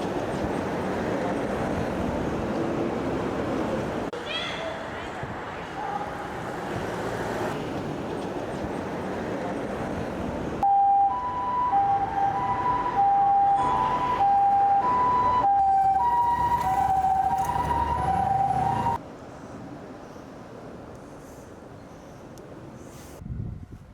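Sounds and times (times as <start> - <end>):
street noise: 0.0 - 23.9
two-tone ambulance siren: 10.6 - 19.0.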